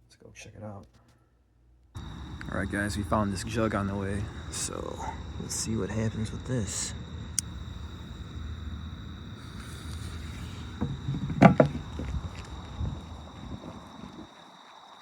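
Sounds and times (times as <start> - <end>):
steady low rumble: 2.0 - 14.3
handling noise: 2.0 - 14.6
knocks: 10.8 - 12.4.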